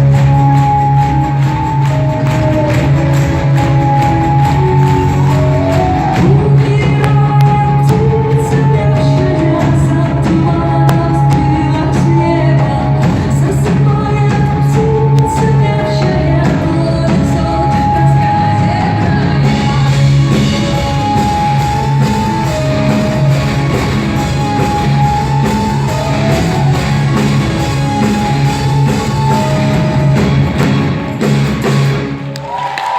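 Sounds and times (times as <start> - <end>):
live rock band playing: 0.0 - 32.7
person singing: 0.4 - 23.7.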